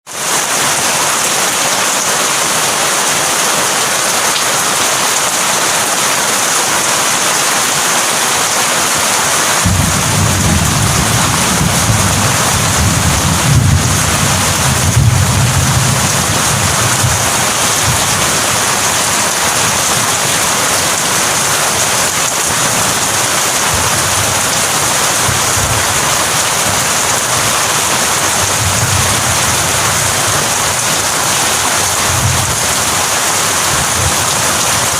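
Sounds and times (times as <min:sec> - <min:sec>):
heavy rain falling: 0:00.0 - 0:34.9
thunder rumbling: 0:09.6 - 0:34.9.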